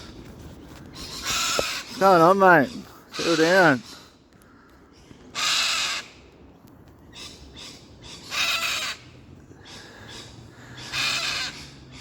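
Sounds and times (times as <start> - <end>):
bird screeching: 1.0 - 4.1, 5.3 - 6.1, 7.2 - 12.0.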